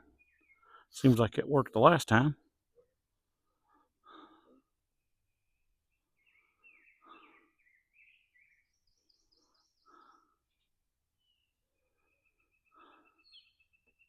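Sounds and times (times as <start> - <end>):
man breathing congested: 0.0 - 1.0, 3.3 - 5.0, 6.3 - 8.0, 9.2 - 10.8, 11.8 - 13.7
songbird chirping: 0.0 - 14.0.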